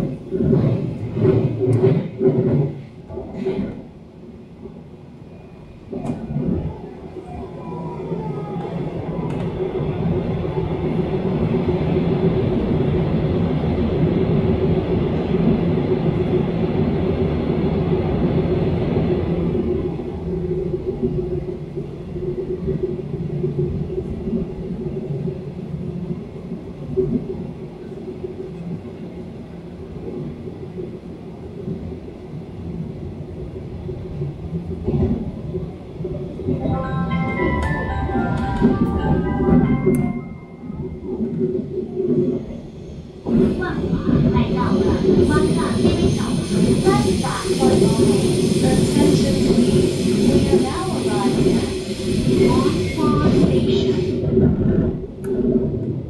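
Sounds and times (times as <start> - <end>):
train wheels and motors rumbling: 0.0 - 56.0
chime-like musical tones: 36.6 - 41.3.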